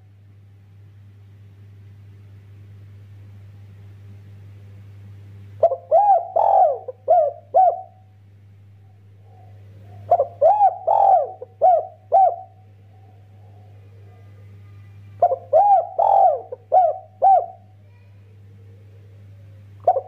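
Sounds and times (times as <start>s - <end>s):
dove cooing: 5.6s - 8.0s, 8.8s - 14.6s, 15.2s - 17.8s, 18.5s - 20.0s.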